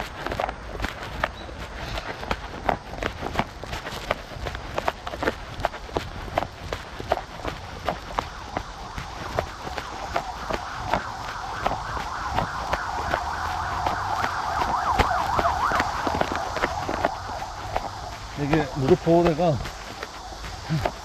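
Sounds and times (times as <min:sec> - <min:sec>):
running footsteps: 0:00.0 - 0:21.0
rising wavering tone: 0:08.3 - 0:20.6.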